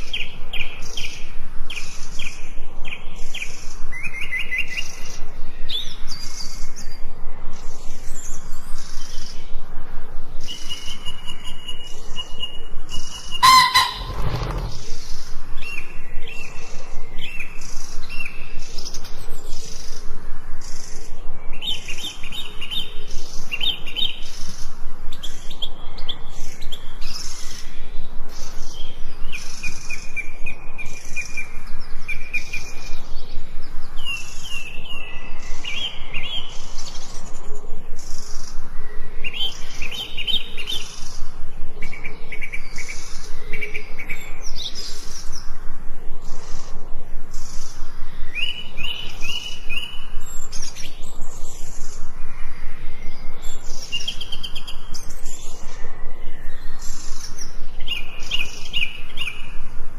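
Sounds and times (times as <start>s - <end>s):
birds chirping and trilling: 10.4s - 16.5s
harsh bird call: 13.2s - 15.0s
high pulsing chirp: 13.4s - 14.8s.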